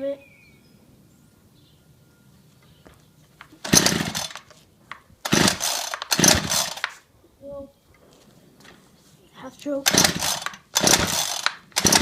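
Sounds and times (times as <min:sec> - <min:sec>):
recoil starter cord rasps: 0:03.6 - 0:04.6, 0:05.2 - 0:07.0, 0:09.8 - 0:12.0.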